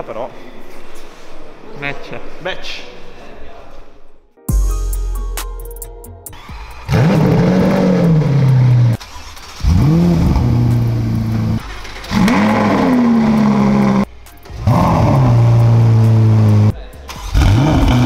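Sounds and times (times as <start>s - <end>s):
car engine starting and revving: 6.3s - 18.0s
car engine idling: 6.4s - 18.0s.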